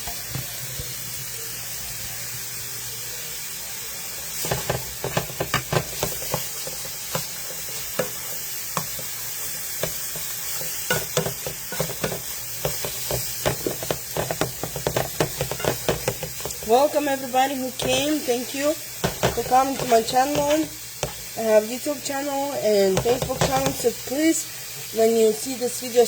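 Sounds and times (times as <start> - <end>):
sausage sizzling in a frying pan: 0.0 - 26.0
spatula scraping a pan: 4.4 - 21.4.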